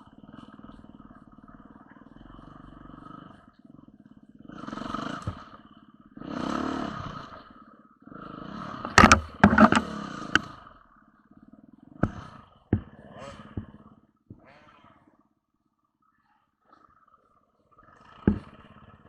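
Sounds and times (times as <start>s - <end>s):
motorcycle engine idling and revving: 0.0s - 19.0s
sharp knocks and clatter: 8.8s - 10.5s.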